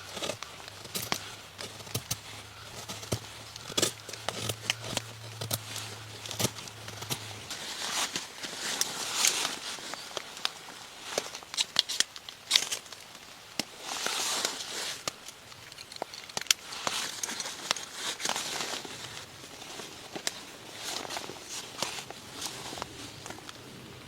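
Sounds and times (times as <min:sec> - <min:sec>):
crinkly rustling: 0:00.0 - 0:24.0
sharp snaps and clicks: 0:15.0 - 0:17.8.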